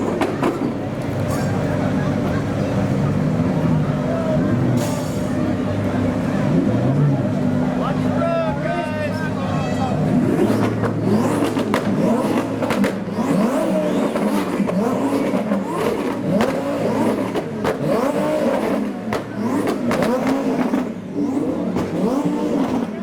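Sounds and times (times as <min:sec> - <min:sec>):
exhaust pops and bangs: 0:00.0 - 0:01.6, 0:10.5 - 0:13.3, 0:14.1 - 0:21.0, 0:21.6 - 0:23.0
car engine revving: 0:00.0 - 0:23.0.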